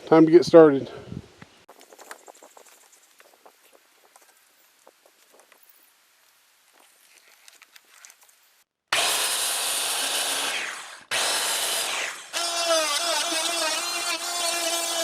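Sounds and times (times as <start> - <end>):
circular saw cutting board: 8.9 - 15.0.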